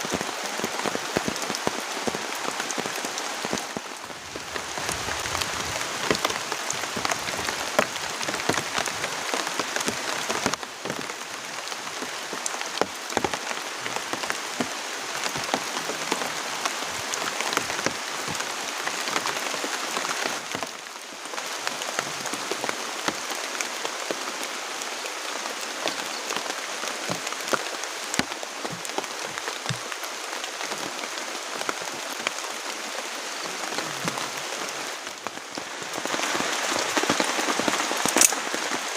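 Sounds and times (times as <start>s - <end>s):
rain falling: 0.0s - 38.9s
raindrop impacts close by: 37.0s - 38.7s.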